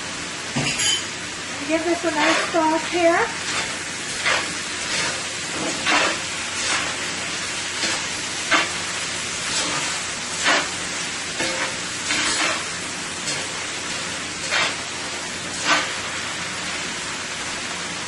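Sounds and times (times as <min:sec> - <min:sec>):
chicken sizzling in a pan: 0:00.0 - 0:18.0
spatula scraping a pan: 0:02.0 - 0:14.9, 0:15.5 - 0:16.0.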